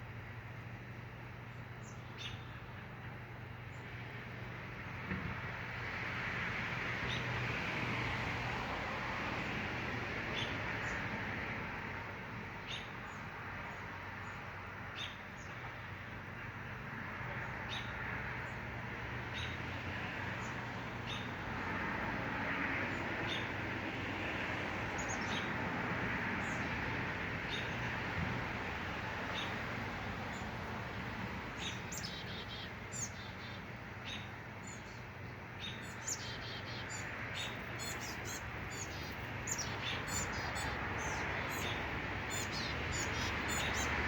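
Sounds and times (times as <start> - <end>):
small birds chirping: 31.6 - 44.0.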